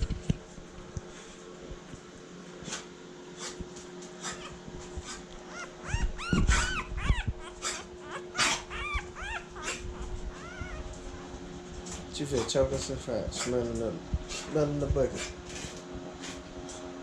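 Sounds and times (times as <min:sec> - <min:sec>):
puppy squeaking and whimpering: 0:04.2 - 0:04.6, 0:05.4 - 0:11.1.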